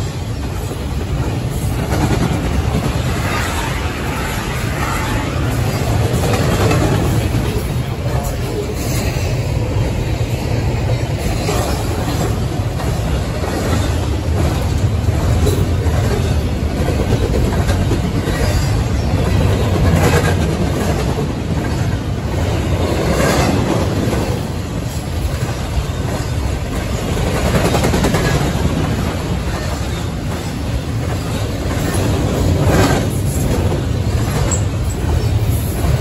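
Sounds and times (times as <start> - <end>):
freight train rumbling: 0.0 - 36.0
wheels clacking over rail joints: 11.0 - 36.0.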